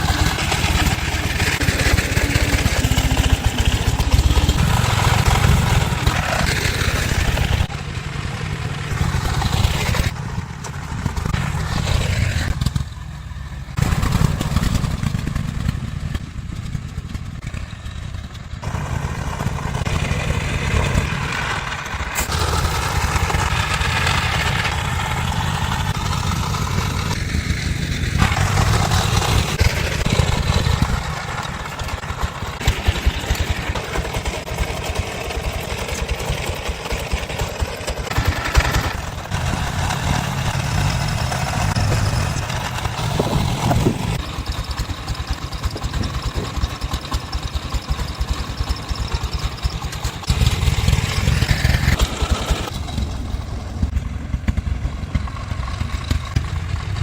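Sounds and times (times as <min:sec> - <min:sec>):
truck engine running: 0:00.0 - 0:57.0.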